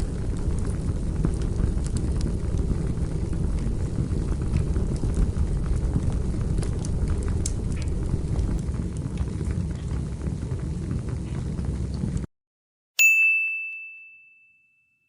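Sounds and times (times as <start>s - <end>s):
campfire crackling and popping: 0.0s - 12.3s
bright ding: 13.0s - 15.0s.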